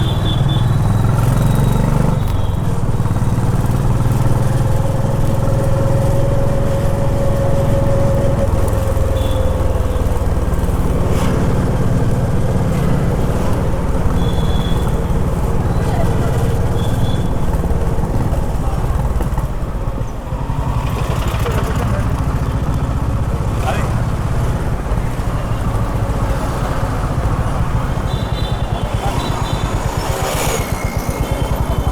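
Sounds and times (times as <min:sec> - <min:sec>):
short high traffic beeps: 0:00.0 - 0:02.6
motorcycle engine thumping: 0:08.5 - 0:31.9.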